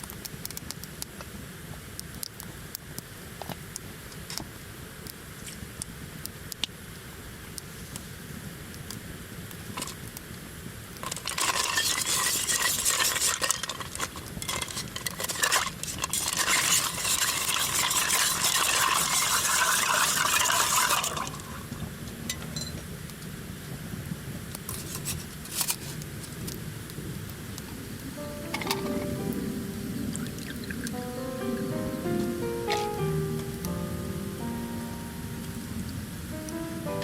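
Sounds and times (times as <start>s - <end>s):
spoon stirring ice in glass: 11.0s - 21.4s.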